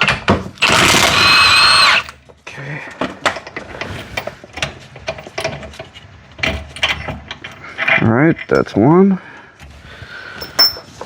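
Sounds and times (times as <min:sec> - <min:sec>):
impact wrench whining: 0:00.6 - 0:02.2.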